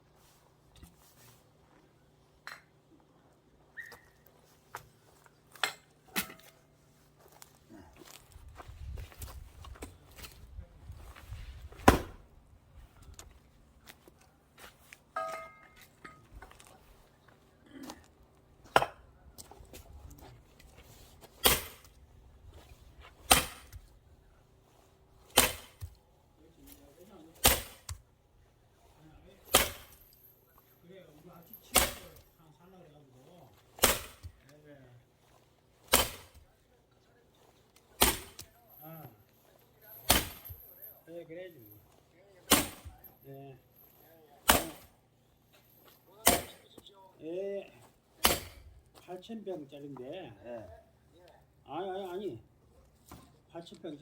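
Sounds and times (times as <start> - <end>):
axe splitting firewood: 5.6 - 6.6, 11.7 - 12.2, 20.8 - 21.9, 23.1 - 23.9, 25.2 - 26.0, 27.3 - 28.0, 29.4 - 30.0, 31.5 - 32.3, 33.5 - 34.5, 35.7 - 36.5, 37.8 - 38.5, 39.9 - 40.8, 42.4 - 43.0, 44.4 - 45.0, 46.2 - 46.8, 48.1 - 48.8.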